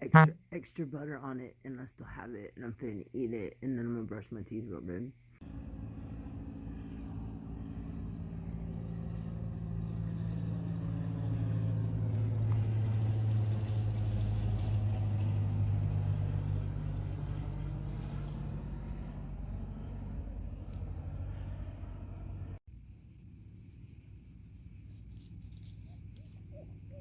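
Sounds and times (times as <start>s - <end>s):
motor engine passing by: 5.4s - 22.6s.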